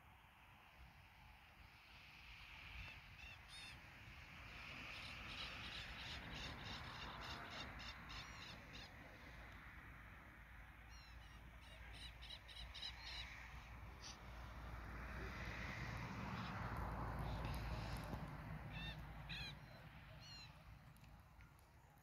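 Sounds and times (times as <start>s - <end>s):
faint harsh bird calls: 17.2s - 20.8s.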